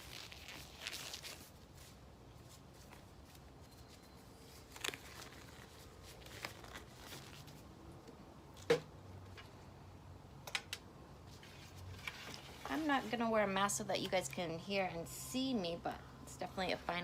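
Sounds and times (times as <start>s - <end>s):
gloves rustling: 0.0s - 8.0s.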